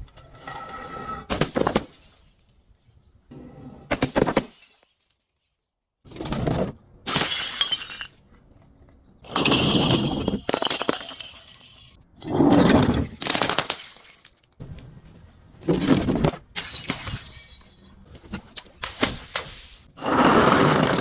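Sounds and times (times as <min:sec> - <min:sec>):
glass bottles shattering: 0:01.3 - 0:02.8, 0:04.0 - 0:05.6, 0:07.1 - 0:08.2, 0:09.2 - 0:12.0, 0:13.2 - 0:14.6, 0:16.5 - 0:18.0.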